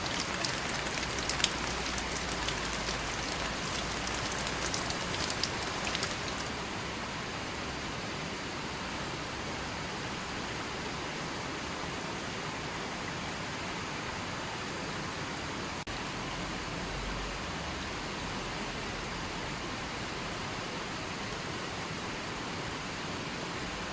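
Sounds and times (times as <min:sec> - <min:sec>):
raindrops pattering: 0:00.0 - 0:06.7
steady rain hiss: 0:00.0 - 0:12.6, 0:15.0 - 0:23.9.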